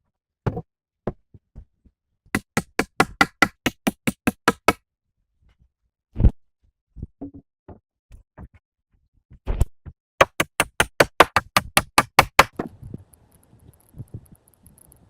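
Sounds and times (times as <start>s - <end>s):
rapid sharp tool strikes: 2.4s - 4.8s, 10.2s - 12.6s.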